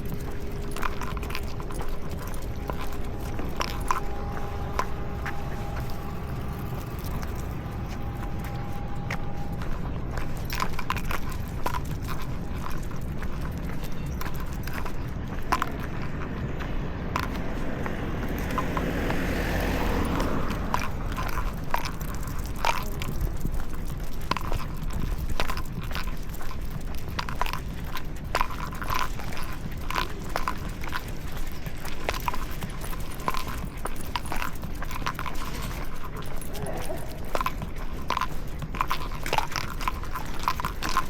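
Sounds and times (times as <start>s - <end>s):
handling noise rumble: 0.0s - 41.0s
rushing sound: 2.4s - 10.8s.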